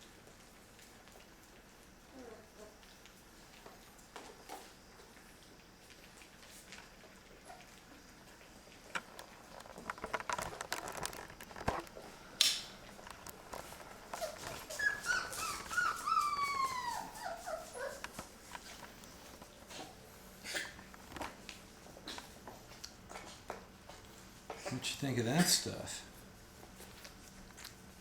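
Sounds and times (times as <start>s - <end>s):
dog whimpering: 2.1s - 2.8s, 14.2s - 18.4s.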